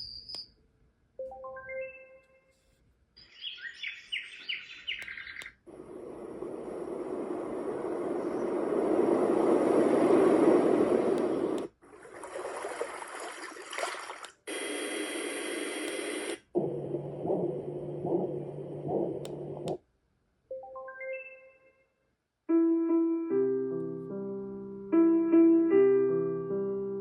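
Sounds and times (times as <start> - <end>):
low hum with soft pulses: 5.7 - 11.7, 16.6 - 19.8
white noise machine hiss: 5.7 - 11.8.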